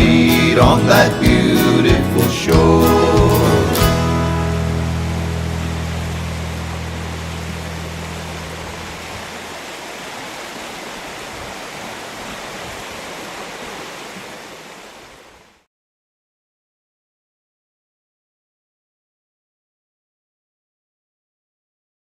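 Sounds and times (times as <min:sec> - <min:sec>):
low organ chord: 0:00.0 - 0:09.4
steady rushing noise: 0:04.6 - 0:15.0.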